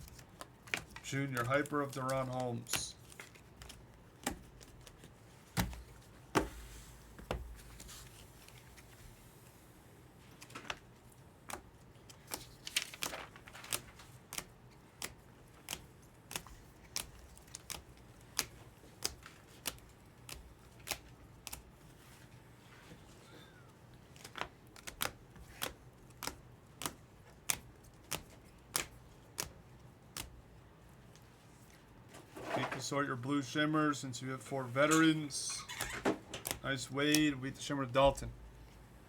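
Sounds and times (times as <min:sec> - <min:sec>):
trading cards tapping: 0:24.2 - 0:29.5, 0:36.3 - 0:37.4.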